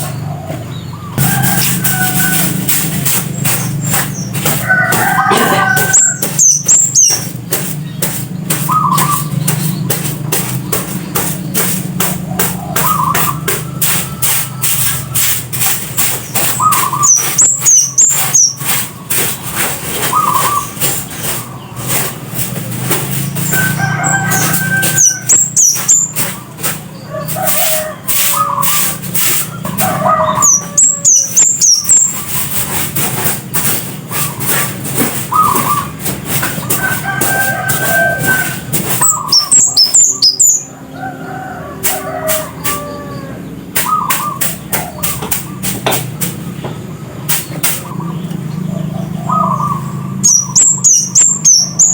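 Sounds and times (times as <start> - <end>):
bird sharp ticking notes: 0.8 - 19.3, 22.8 - 32.5, 35.2 - 40.7, 43.7 - 51.9
bird lower repeating notes: 1.1 - 15.4, 35.3 - 40.7
bird very high thin notes: 1.2 - 7.4.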